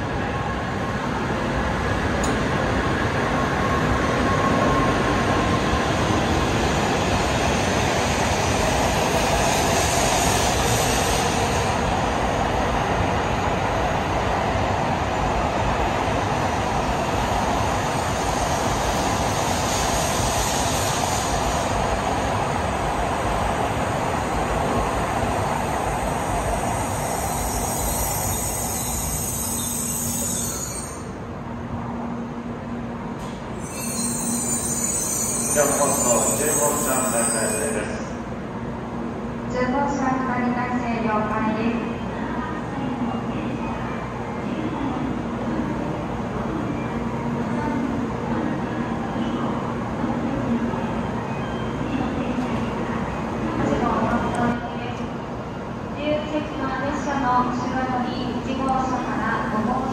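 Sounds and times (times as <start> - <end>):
train rushing past: 0.0 - 39.6
high squeal: 27.0 - 31.1, 33.6 - 38.1.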